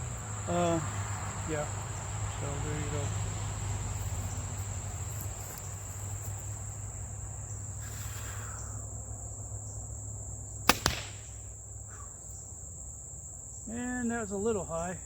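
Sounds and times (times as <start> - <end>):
crickets chirring: 0.0 - 15.0
bow string crack: 10.6 - 11.6
arrow striking target: 10.7 - 11.4.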